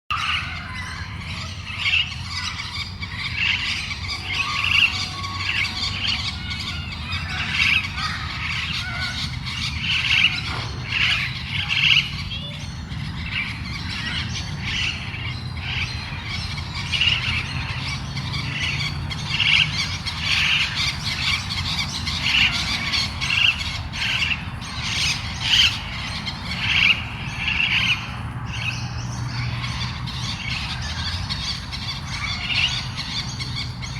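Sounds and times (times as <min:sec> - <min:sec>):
parrot squawking and chirping: 0:00.1 - 0:12.2.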